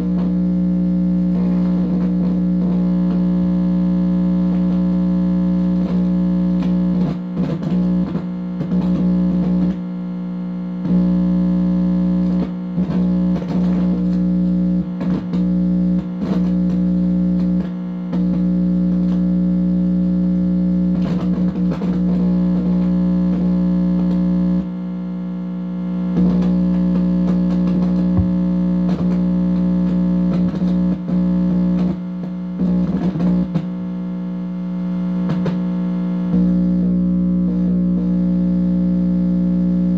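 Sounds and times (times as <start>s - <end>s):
electronic crackles: 0.0s - 24.7s
electronic buzz drone: 0.0s - 39.9s.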